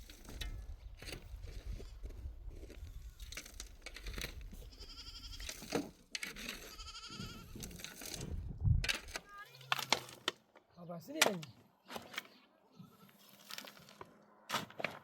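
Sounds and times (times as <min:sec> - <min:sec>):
livestock bleating: 0:04.6 - 0:05.5, 0:06.6 - 0:07.6, 0:09.3 - 0:09.9, 0:12.3 - 0:13.3.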